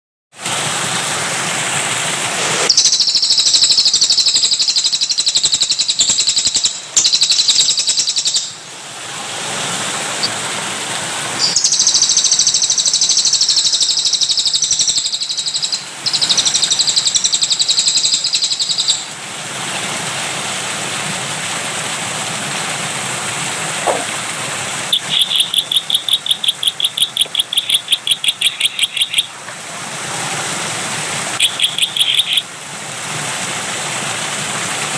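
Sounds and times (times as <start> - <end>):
running water: 0.3 - 34.9
songbird singing: 2.7 - 8.6, 11.4 - 19.1, 24.9 - 29.4, 31.4 - 32.5.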